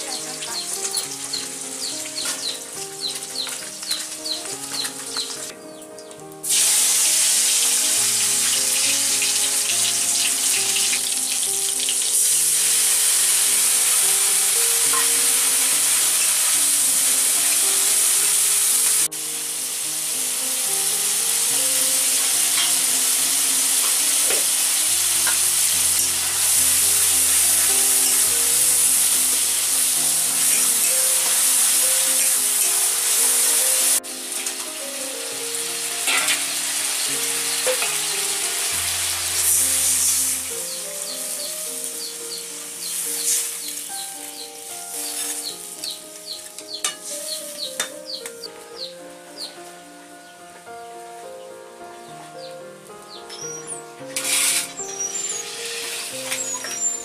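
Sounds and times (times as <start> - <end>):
paste sizzling in a wok: 0.0 - 5.5, 6.4 - 47.9, 54.1 - 57.0
background music: 0.0 - 57.0
metal spatula stirring: 54.2 - 54.8.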